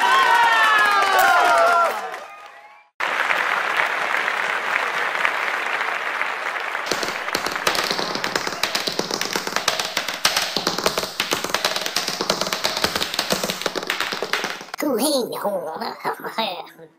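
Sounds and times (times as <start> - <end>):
applause: 0.0 - 10.2
tap-dance taps on wooden stage: 6.9 - 14.8.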